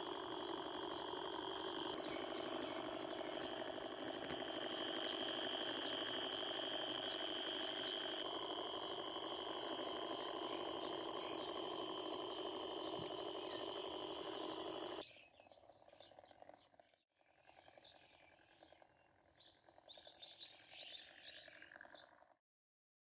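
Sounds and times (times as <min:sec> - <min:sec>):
small motors whining: 0:00.0 - 0:15.1.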